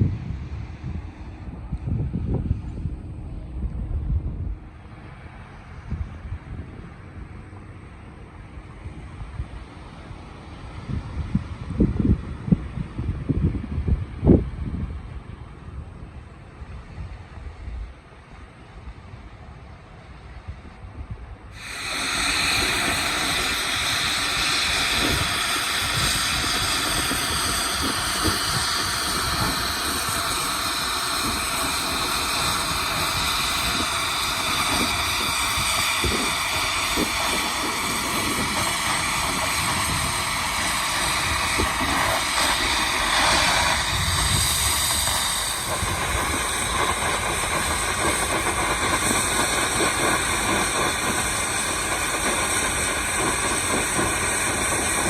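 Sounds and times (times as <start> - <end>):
steady whining tones: 0.0 - 55.0
metalworking machinery hissing: 21.5 - 55.0.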